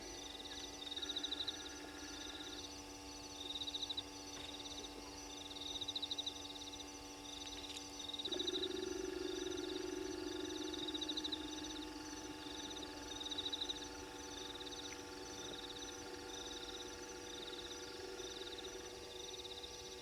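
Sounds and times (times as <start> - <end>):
insects trilling: 0.0 - 20.0
low hum: 6.4 - 20.0.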